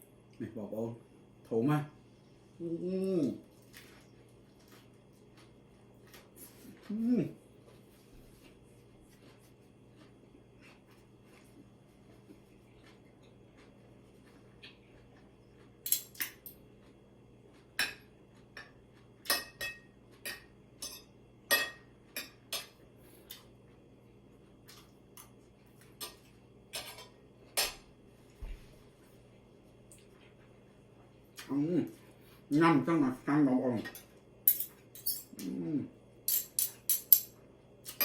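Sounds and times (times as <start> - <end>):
utensils clinking against dishes: 15.9 - 16.5, 19.3 - 22.8, 26.0 - 27.8, 33.8 - 35.4, 36.3 - 38.0.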